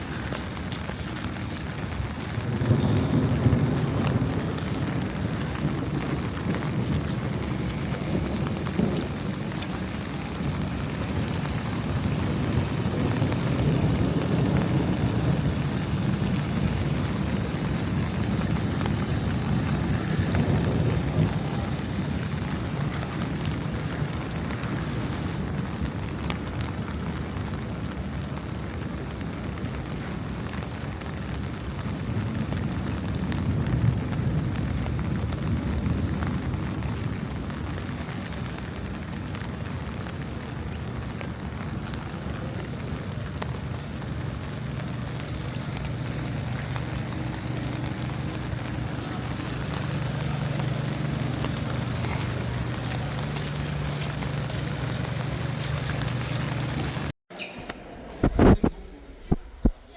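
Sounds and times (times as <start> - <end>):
steady rain falling: 0.0 - 57.2
low rumble: 41.2 - 59.9.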